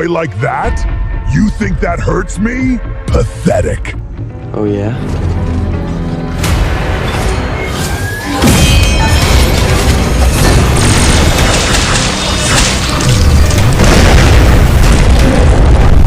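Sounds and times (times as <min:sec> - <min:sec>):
dramatic background music: 0:00.0 - 0:16.0
cinematic booming battle effects: 0:08.3 - 0:16.0.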